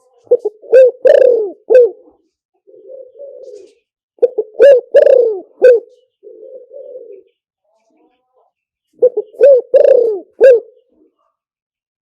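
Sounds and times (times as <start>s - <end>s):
dove cooing: 0.3s - 7.4s, 9.0s - 11.1s.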